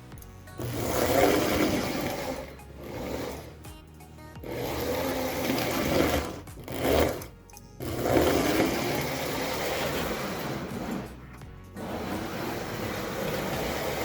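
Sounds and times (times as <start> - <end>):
toy train motors whirring: 0.6 - 3.6, 4.4 - 11.2.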